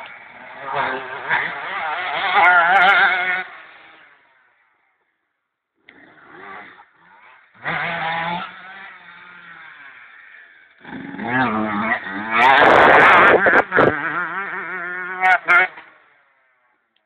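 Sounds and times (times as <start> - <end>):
motorcycle engines revving: 0.0 - 5.1, 5.8 - 16.9.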